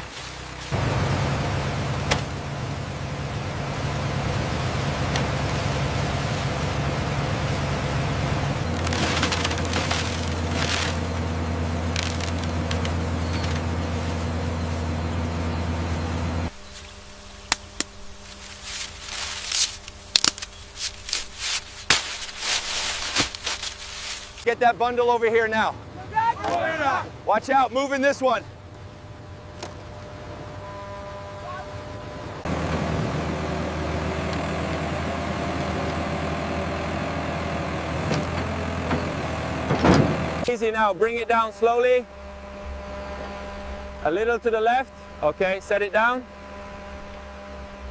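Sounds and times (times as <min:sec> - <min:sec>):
loud machine hum: 0:00.5 - 0:20.7, 0:28.4 - 0:47.9
faint hum: 0:00.7 - 0:36.3, 0:40.4 - 0:47.9
brief rustles: 0:18.2 - 0:24.5.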